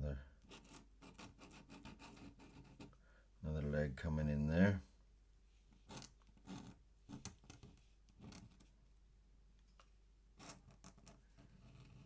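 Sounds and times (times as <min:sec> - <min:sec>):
pen scratching on paper: 0:00.5 - 0:02.9, 0:11.4 - 0:12.0.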